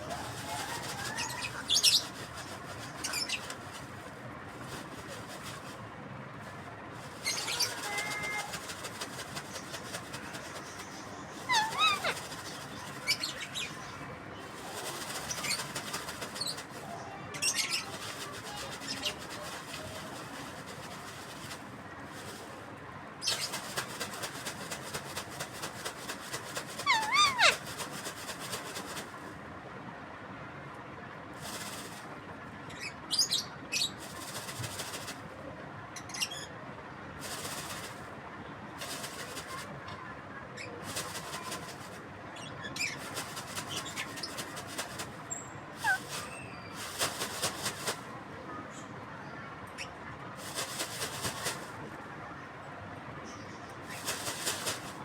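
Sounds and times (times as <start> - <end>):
parrot chirping and squeaking: 3.0 - 3.4, 7.2 - 8.5, 11.4 - 12.3, 26.8 - 27.6, 45.8 - 46.6.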